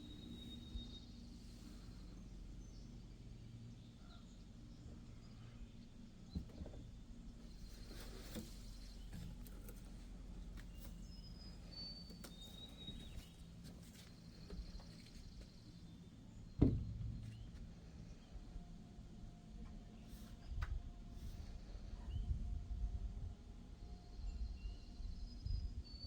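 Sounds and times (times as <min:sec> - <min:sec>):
faint bird whistles: 0:00.0 - 0:01.2
sharp thump: 0:16.6 - 0:17.2.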